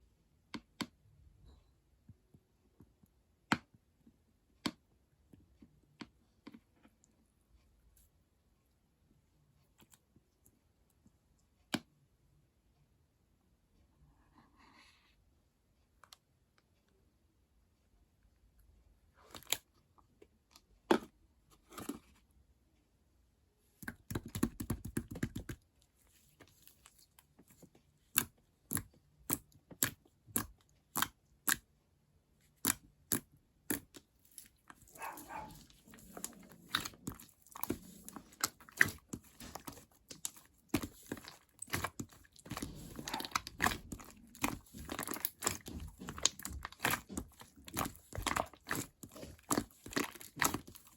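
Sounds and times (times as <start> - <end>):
wet slime squelching: 19.1 - 19.9, 23.8 - 31.7, 32.3 - 50.9.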